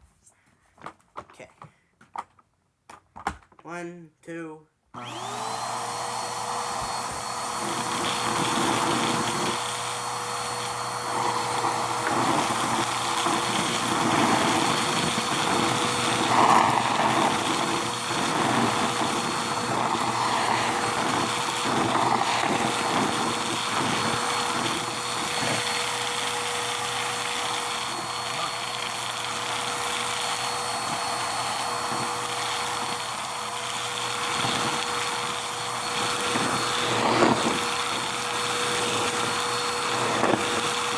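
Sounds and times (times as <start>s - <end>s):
vacuum cleaner whining: 5.0s - 40.9s.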